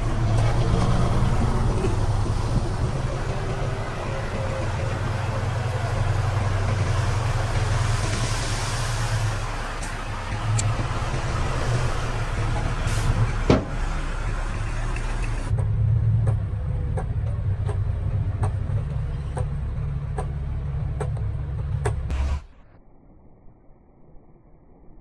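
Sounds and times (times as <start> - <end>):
diesel engine running: 0.0 - 22.6
regular clanking: 9.5 - 15.5.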